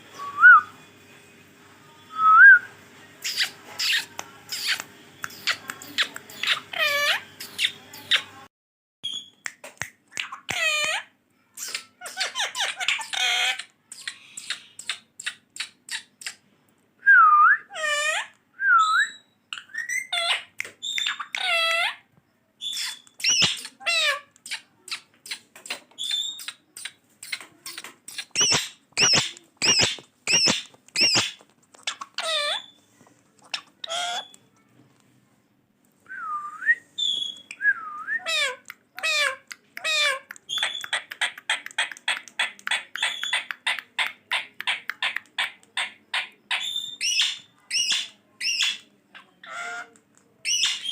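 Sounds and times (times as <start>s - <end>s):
parakeet chattering: 3.2s - 8.4s, 10.2s - 16.4s, 19.5s - 22.0s, 22.7s - 32.8s, 33.4s - 34.4s, 38.2s - 50.9s.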